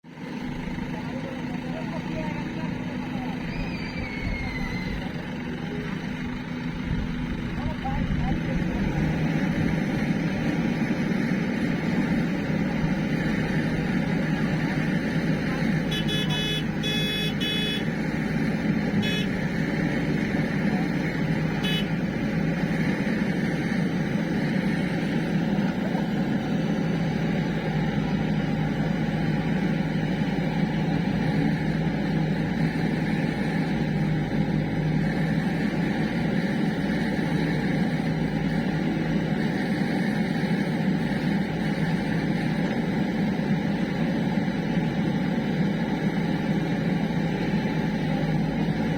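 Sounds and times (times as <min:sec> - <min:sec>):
diesel engine running: 0:00.0 - 0:48.9
short high-pitched beeps: 0:15.9 - 0:17.9, 0:19.0 - 0:19.4, 0:21.6 - 0:21.9.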